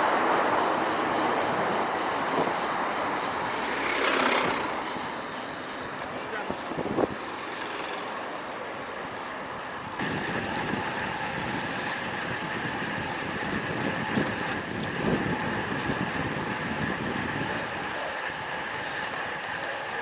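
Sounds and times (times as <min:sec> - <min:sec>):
wind rushing over microphone: 0:00.0 - 0:05.2, 0:10.0 - 0:17.9
bike tyre noise: 0:00.0 - 0:20.0.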